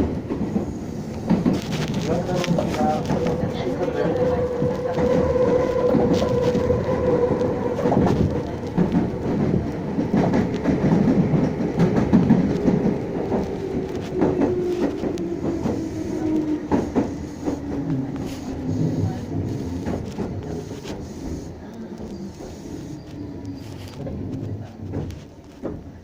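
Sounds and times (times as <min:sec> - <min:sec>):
train interior rumble: 0:00.0 - 0:26.0.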